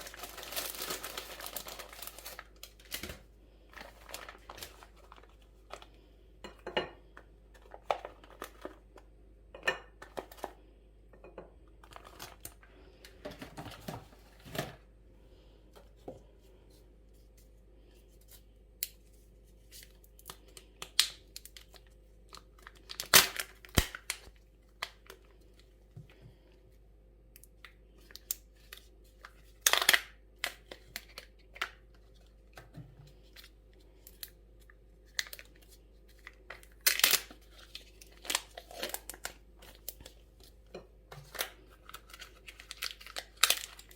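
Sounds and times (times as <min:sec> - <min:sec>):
plastic wrappers crinkling and tearing: 0:00.0 - 0:06.0, 0:07.5 - 0:09.1, 0:11.8 - 0:14.6, 0:18.2 - 0:25.7, 0:27.9 - 0:43.9.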